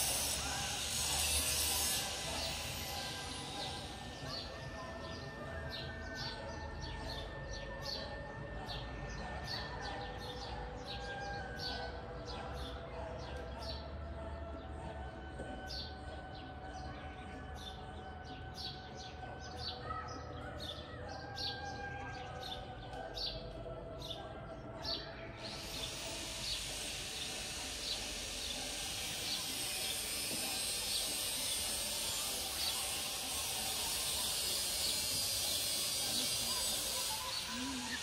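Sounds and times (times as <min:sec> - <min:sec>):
steady high hiss: 0:00.0 - 0:04.2, 0:25.4 - 0:38.0
small birds chirping: 0:16.8 - 0:38.0.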